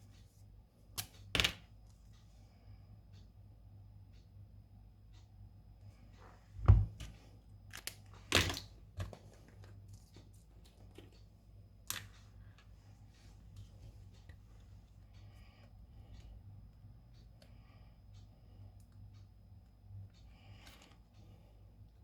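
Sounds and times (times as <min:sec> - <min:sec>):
low steady hum: 0:00.0 - 0:22.0
thump on bench: 0:06.6 - 0:07.0.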